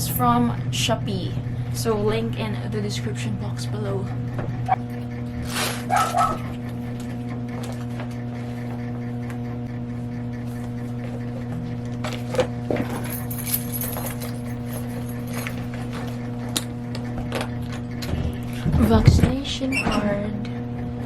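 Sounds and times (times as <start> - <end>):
low electrical hum: 0.0 - 21.0
small objects clicking and jingling: 12.8 - 16.6.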